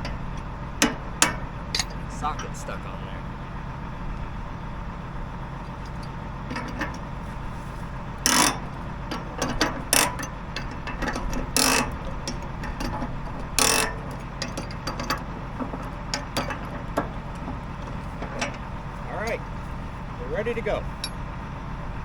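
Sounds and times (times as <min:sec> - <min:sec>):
engine idling: 0:00.0 - 0:22.0
ratchet clicking on metal: 0:08.2 - 0:17.1.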